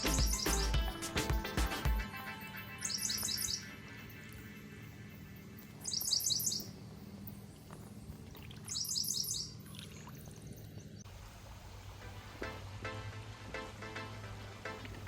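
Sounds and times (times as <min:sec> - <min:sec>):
songbird singing high notes: 0:00.0 - 0:00.9, 0:02.1 - 0:04.4, 0:05.8 - 0:06.8, 0:08.7 - 0:09.7.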